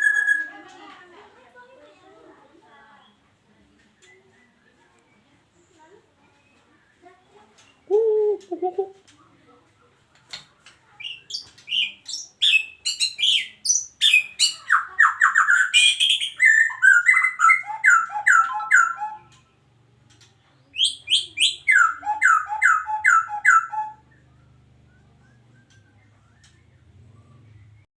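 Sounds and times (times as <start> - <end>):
bird singing whistled phrases: 0.0 - 0.6, 11.0 - 19.4, 20.7 - 27.8.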